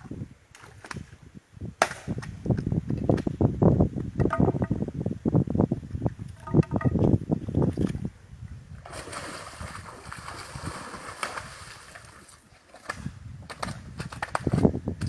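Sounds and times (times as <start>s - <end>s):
water splashing and sloshing: 8.8s - 14.6s.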